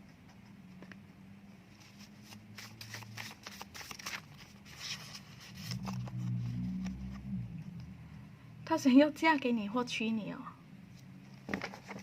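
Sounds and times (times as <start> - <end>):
faint low hum: 0.0 - 12.0
cards rustling: 1.8 - 7.3, 11.4 - 12.0.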